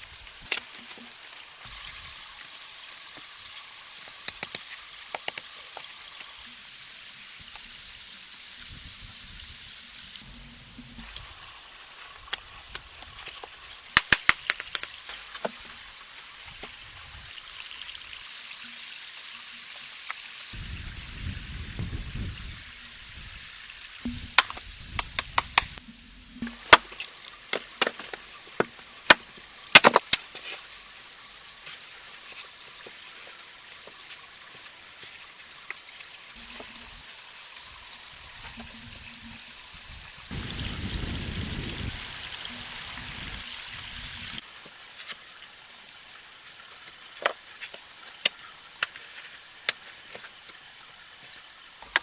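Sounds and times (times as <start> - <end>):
sharp snaps and clicks: 4.2 - 5.5, 13.9 - 15.2, 24.4 - 25.8
rain hissing: 5.7 - 18.3, 20.5 - 31.6, 36.4 - 44.5.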